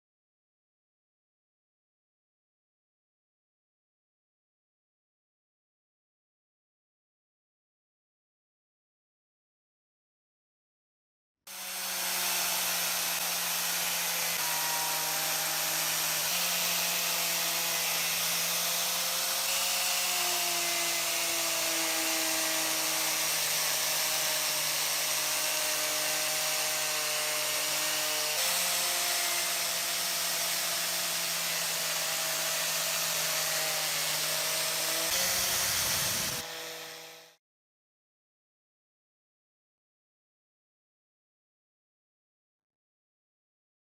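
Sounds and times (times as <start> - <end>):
electric power tool running: 11.5 - 37.4.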